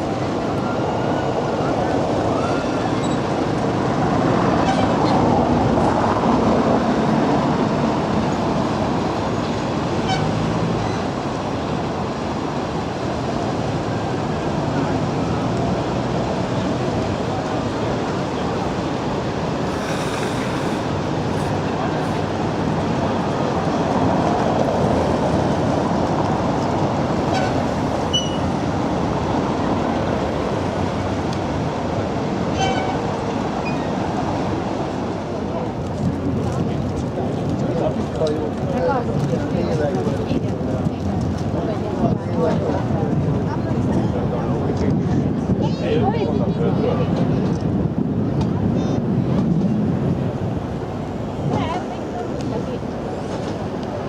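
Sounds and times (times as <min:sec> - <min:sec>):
boat engine drone: 0:00.0 - 0:36.4
water: 0:00.0 - 0:54.0
loud mechanical rumble: 0:19.5 - 0:31.3.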